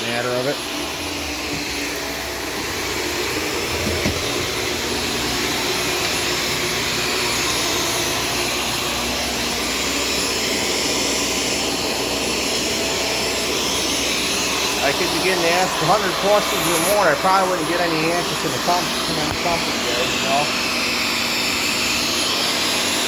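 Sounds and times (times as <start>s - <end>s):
vacuum cleaner running: 0.0s - 23.0s.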